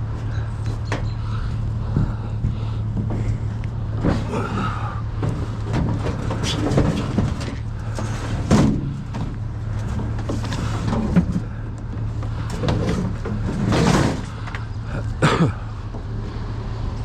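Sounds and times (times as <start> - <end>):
vehicle engine idling: 0.0 - 17.0
knocks and clatters: 5.1 - 14.7.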